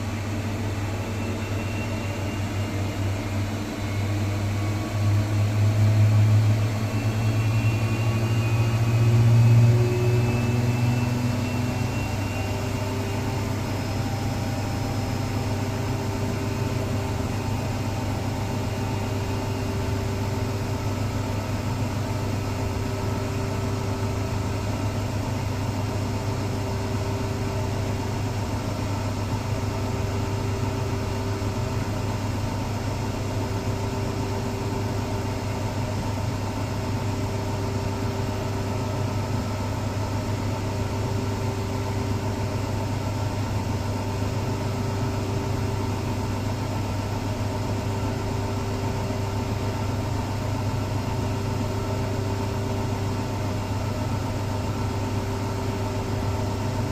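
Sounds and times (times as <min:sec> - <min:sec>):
washing machine spinning: 0:00.0 - 0:56.9.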